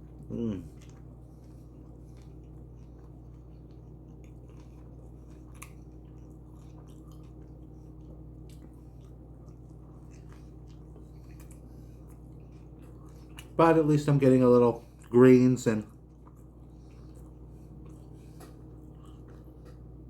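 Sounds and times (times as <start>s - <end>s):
steady low hum: 0.0s - 20.0s
wet chewing mouth clicks: 0.2s - 13.6s.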